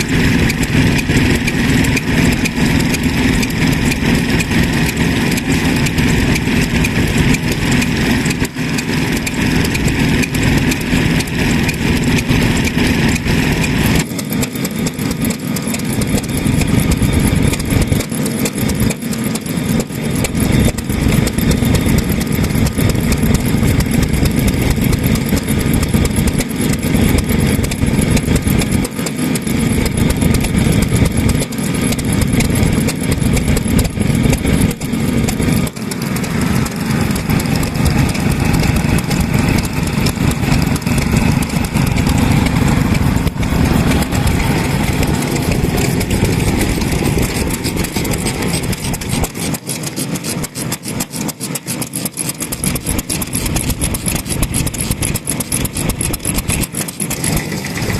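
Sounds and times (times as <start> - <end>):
stationary engines running: 0.0 - 57.9.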